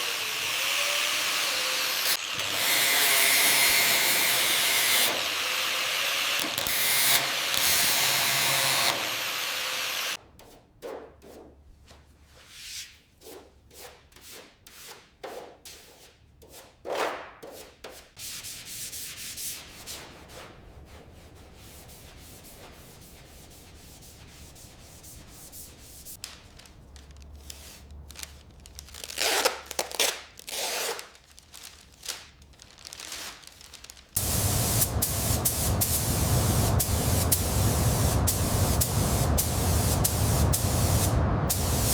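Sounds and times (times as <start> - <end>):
hand sanding a surface: 17.5 - 26.2, 34.2 - 41.0
steady loud hiss: 34.2 - 41.9.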